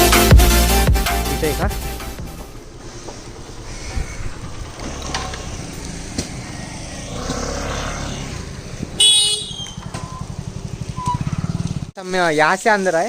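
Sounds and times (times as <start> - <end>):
vehicle engine rumbling: 0.7 - 12.0.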